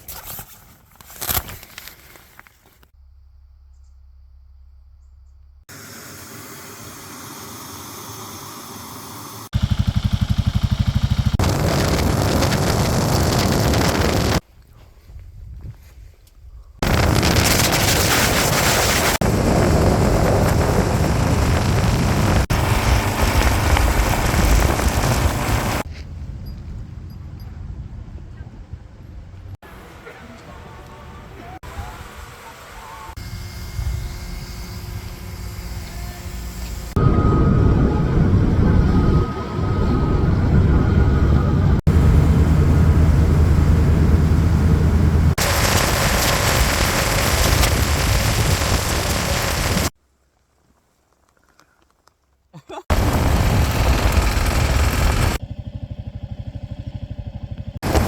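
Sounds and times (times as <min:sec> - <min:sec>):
motorcycle engine running: 0:09.5 - 0:14.4, 0:19.4 - 0:25.9, 0:52.9 - 0:58.0
wind buffeting microphone: 0:11.4 - 0:17.8, 0:19.2 - 0:29.6, 0:37.0 - 0:49.9.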